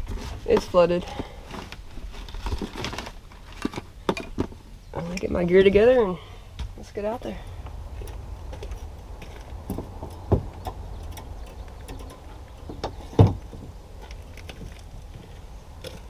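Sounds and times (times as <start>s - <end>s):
low steady rumble: 0.0s - 16.0s
fishing gear clicks and rattles: 8.0s - 16.0s
sharp knocks: 9.7s - 10.8s.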